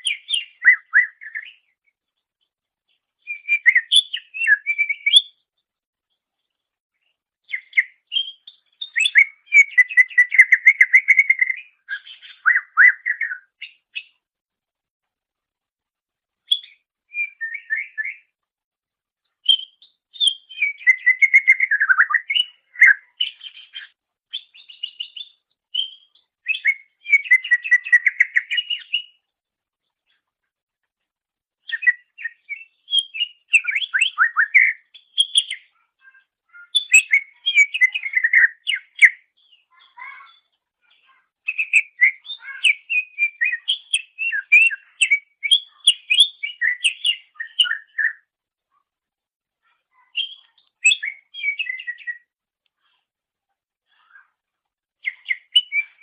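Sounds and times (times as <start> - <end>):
bird warbling and whistling: 3.3 - 5.3, 7.5 - 13.8, 16.5 - 18.2, 19.4 - 29.2, 31.7 - 35.7, 36.5 - 39.2, 41.5 - 48.2, 50.0 - 52.2, 55.0 - 56.0.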